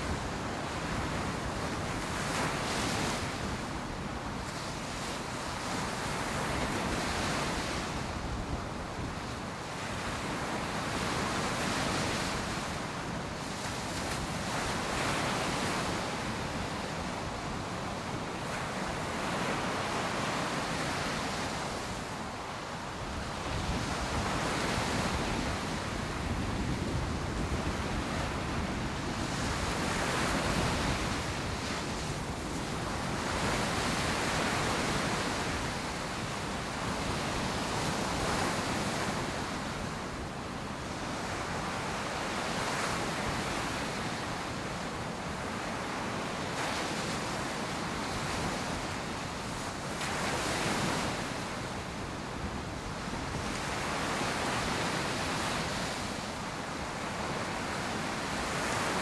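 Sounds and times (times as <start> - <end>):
wind on microphone: 23.1 - 36.0.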